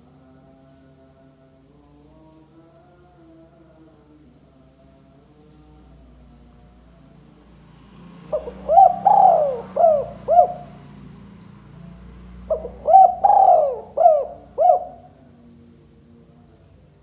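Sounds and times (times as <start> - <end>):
dove cooing: 8.3 - 10.8, 12.4 - 15.2.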